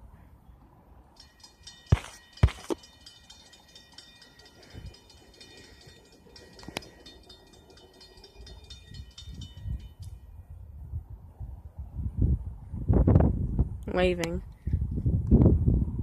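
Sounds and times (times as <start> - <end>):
high ringing tones: 1.1 - 10.7.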